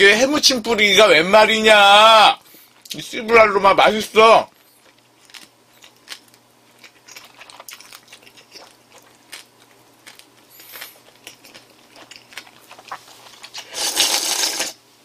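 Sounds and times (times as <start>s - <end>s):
person chewing food: 4.5s - 14.6s.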